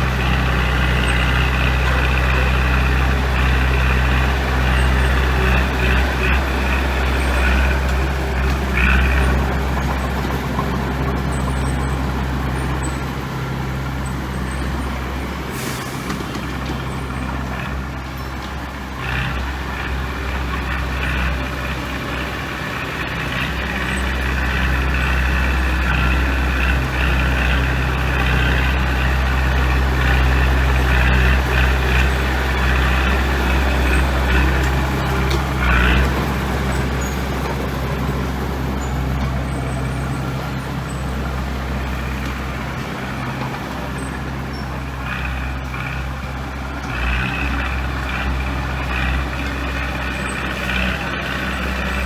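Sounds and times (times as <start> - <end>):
diesel machinery engine hum: 0.0 - 52.0.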